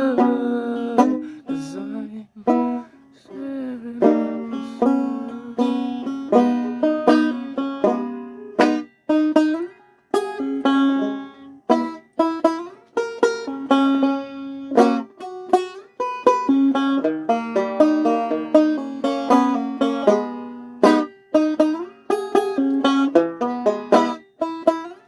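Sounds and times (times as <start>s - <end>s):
banjo melody: 0.0s - 25.0s.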